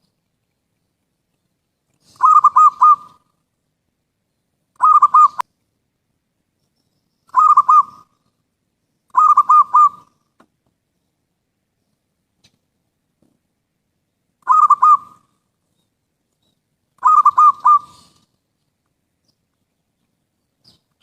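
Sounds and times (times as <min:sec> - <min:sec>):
dove cooing: 0:02.0 - 0:03.3, 0:04.8 - 0:05.4, 0:07.3 - 0:08.1, 0:09.1 - 0:10.1, 0:14.4 - 0:15.3, 0:17.0 - 0:18.3.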